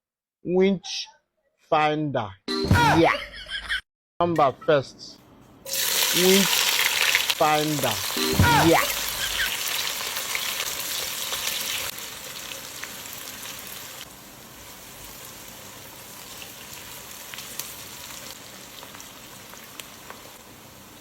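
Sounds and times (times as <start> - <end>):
food sizzling in a pan: 5.7 - 21.0.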